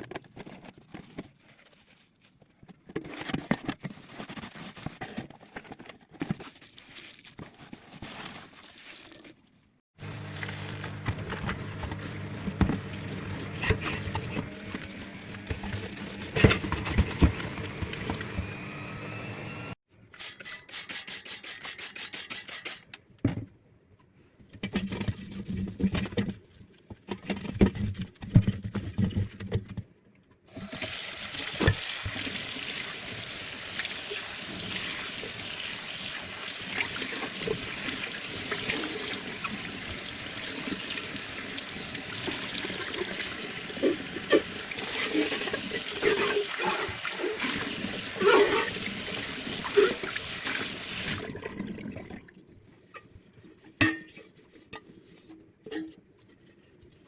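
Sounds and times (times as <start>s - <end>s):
tap water running into sink: 30.5s - 51.8s.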